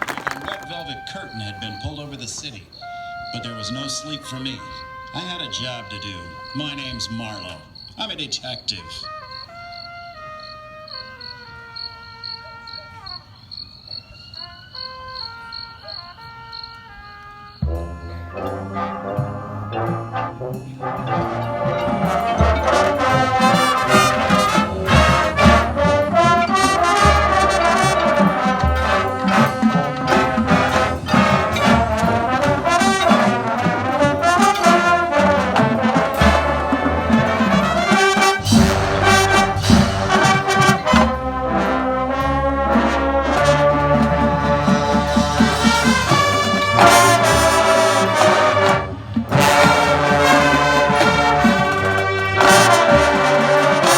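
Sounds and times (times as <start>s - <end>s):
steady drumming: 0.0s - 2.7s, 17.7s - 53.9s
marching band playing: 0.0s - 13.0s, 15.1s - 53.9s
trombones and trumpets: 0.0s - 53.9s.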